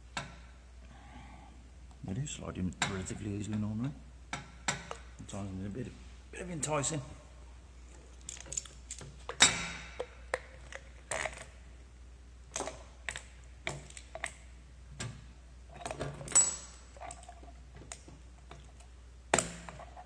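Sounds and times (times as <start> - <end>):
metal clicks and clinks: 8.2 - 9.6.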